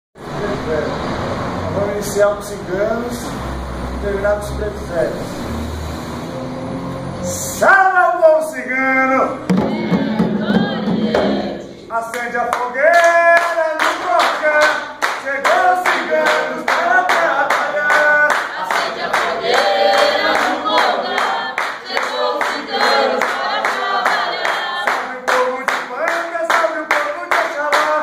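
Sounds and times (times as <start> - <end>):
group singing a hymn: 9.2 - 11.9, 13.9 - 25.9
rhythmic hand clapping: 9.5 - 28.0.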